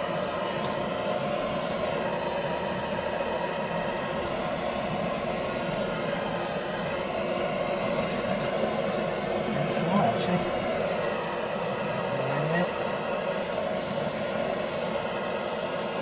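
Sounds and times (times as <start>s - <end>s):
blowtorch flame rushing: 0.0s - 16.0s.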